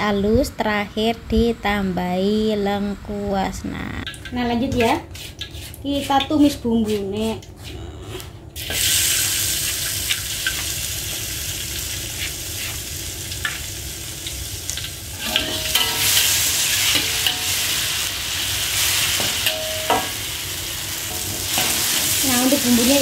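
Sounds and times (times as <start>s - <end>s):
spice paste sizzling in hot oil: 8.6s - 23.0s
metal spatula scraping a wok: 15.2s - 18.1s.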